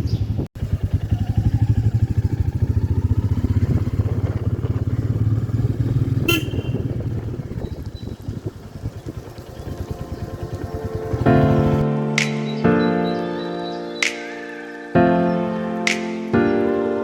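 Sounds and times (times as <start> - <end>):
motorcycle engine thumping: 0.0 - 11.8
horn beep: 6.2 - 7.1.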